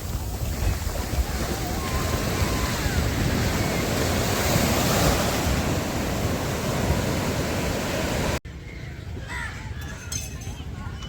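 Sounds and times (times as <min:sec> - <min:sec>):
sea surf washing on beach: 0:00.0 - 0:08.4
wind buffeting microphone: 0:00.0 - 0:08.4.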